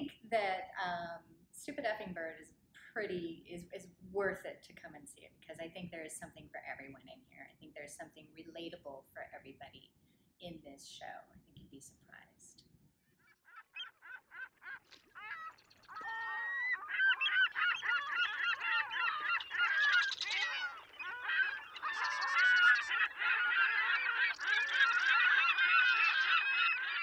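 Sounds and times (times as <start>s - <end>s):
geese honking: 13.5s - 27.0s.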